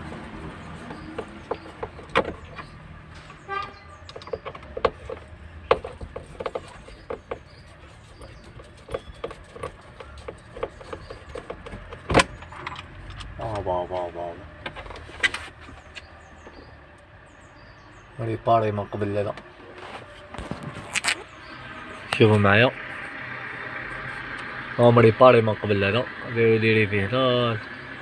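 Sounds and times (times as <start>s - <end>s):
hand tools clicking and knocking: 0.1s - 13.6s.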